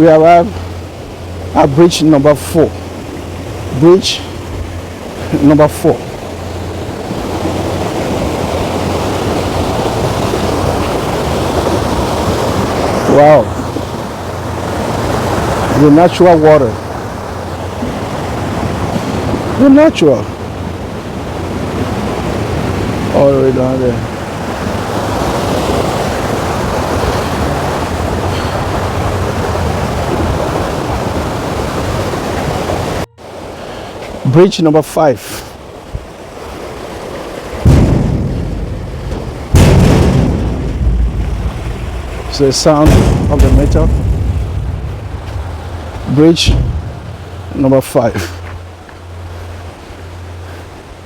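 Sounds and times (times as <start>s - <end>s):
stream water rushing: 0.0s - 51.0s
wind noise on microphone: 37.6s - 47.6s.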